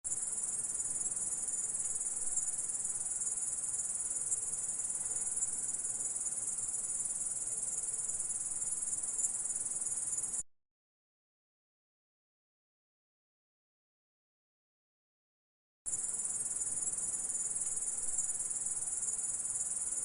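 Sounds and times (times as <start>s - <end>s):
insect high-pitched trill: 0.1s - 10.4s, 15.9s - 20.0s.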